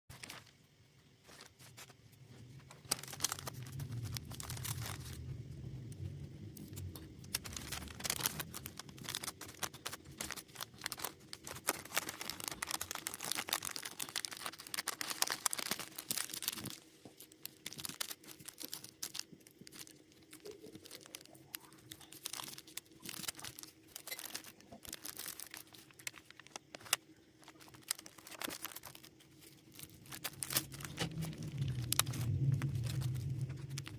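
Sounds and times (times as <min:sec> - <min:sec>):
faint steady hum: 0:00.1 - 0:33.9
low rumble: 0:02.4 - 0:10.3, 0:27.6 - 0:33.9.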